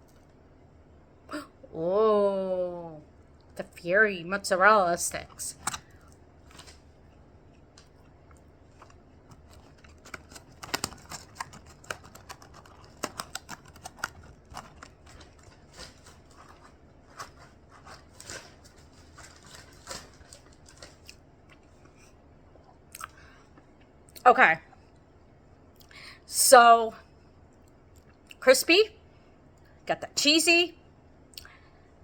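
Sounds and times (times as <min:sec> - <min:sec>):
crunchy chewing: 0:05.1 - 0:22.2.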